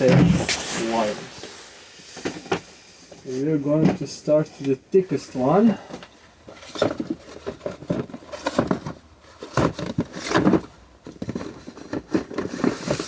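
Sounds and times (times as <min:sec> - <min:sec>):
objects knocking and clattering: 0:05.8 - 0:13.0.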